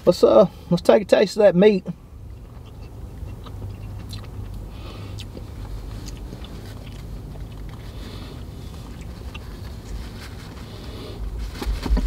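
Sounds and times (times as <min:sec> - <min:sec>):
person chewing: 0:02.2 - 0:10.9.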